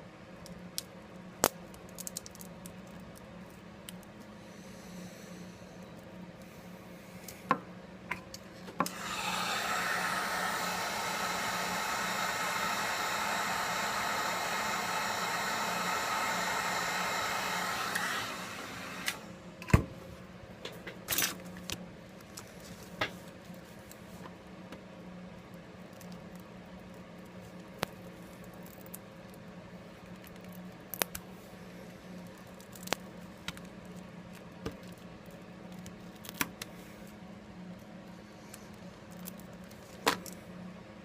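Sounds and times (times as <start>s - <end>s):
blowing air hiss: 8.9s - 19.3s.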